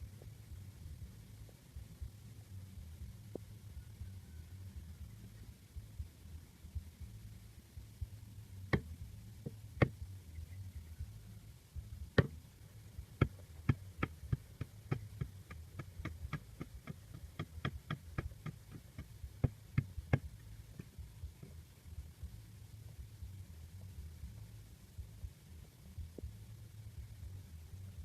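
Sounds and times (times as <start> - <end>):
low steady hum: 0.0 - 28.0
sharp irregular knocks: 12.2 - 12.4.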